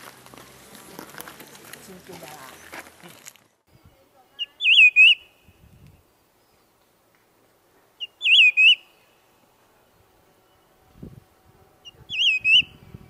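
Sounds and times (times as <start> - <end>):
laughingthrush whistled song: 4.4 - 5.6, 8.0 - 9.0, 11.8 - 12.9.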